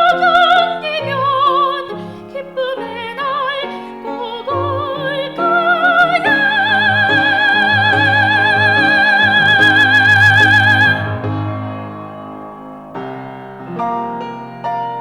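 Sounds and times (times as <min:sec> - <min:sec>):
operatic singing with vibrato: 0:00.0 - 0:12.2
low accompaniment: 0:04.8 - 0:14.0.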